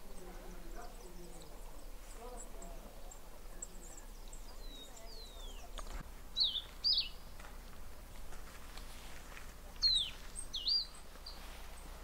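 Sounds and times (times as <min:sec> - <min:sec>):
sharp whistled bird calls: 0:06.4 - 0:07.2, 0:09.8 - 0:11.4.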